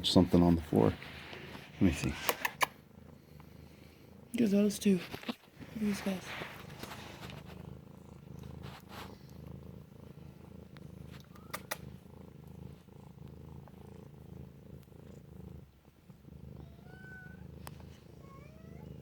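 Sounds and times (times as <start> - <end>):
cat purring: 0.0 - 19.0
sharp clicks: 2.2 - 2.8, 11.2 - 11.8.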